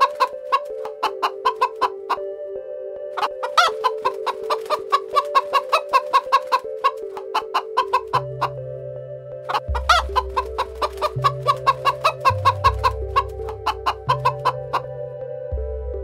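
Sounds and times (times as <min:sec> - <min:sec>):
chicken call: 0:00.0 - 0:02.2, 0:03.2 - 0:08.6, 0:09.5 - 0:14.9
soft background music: 0:00.0 - 0:16.0
chickens pecking grain clicks: 0:03.2 - 0:08.2, 0:10.4 - 0:13.3.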